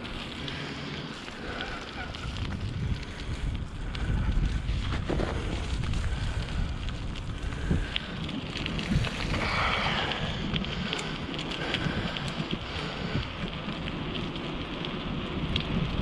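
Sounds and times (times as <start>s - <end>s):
light crackling and ticking: 0.0s - 16.0s
wind buffeting microphone: 0.0s - 16.0s.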